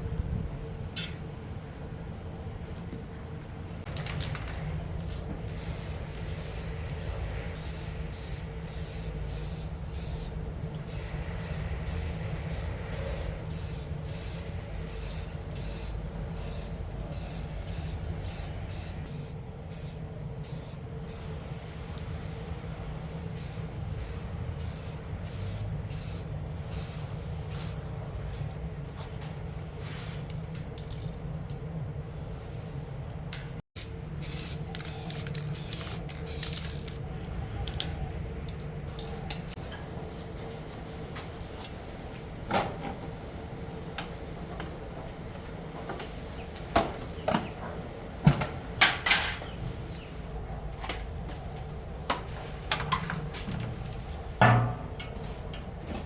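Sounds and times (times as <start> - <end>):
steady low hum: 0.0 - 56.0
paint spray gun hissing: 5.0 - 21.4, 23.3 - 27.8, 33.8 - 36.9.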